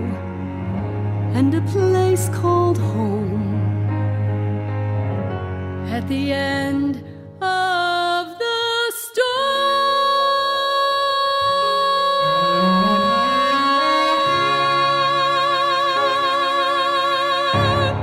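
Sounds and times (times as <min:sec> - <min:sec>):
sustained instrumental chords: 0:00.0 - 0:07.4
woman singing: 0:01.3 - 0:03.8, 0:05.9 - 0:18.0.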